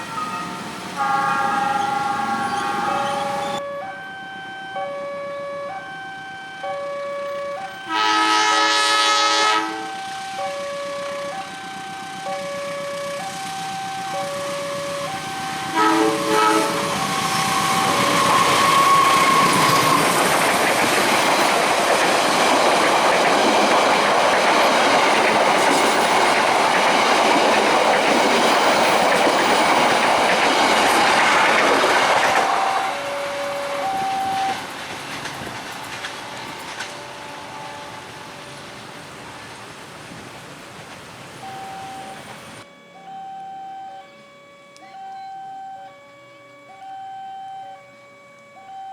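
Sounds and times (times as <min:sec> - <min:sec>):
crossing warning alarm tones: 0:00.0 - 0:39.8, 0:41.2 - 0:48.9
train wheels clattering on rails: 0:16.6 - 0:41.5.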